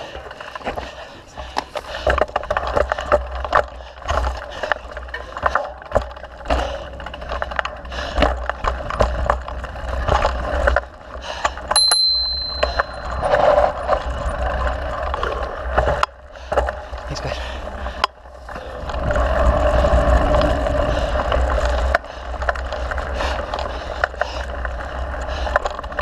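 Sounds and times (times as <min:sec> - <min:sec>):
bike rattling and clicking: 0:00.0 - 0:26.0
sharp bell ding: 0:11.8 - 0:13.4
wind rumble on microphone: 0:17.6 - 0:23.7.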